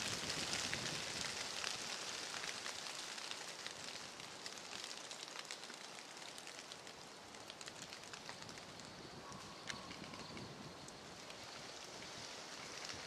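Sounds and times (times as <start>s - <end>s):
water droplets pattering on leaves: 0.0s - 13.0s.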